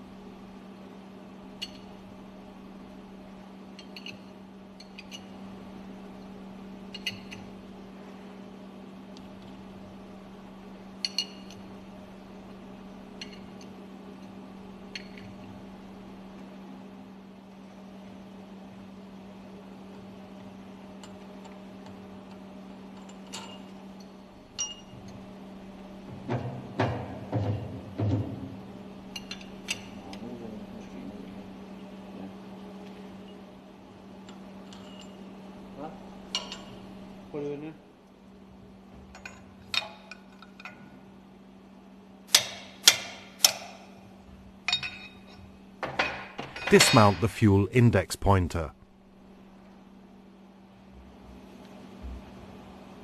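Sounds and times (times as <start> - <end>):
low machinery hum: 0.0 - 42.3.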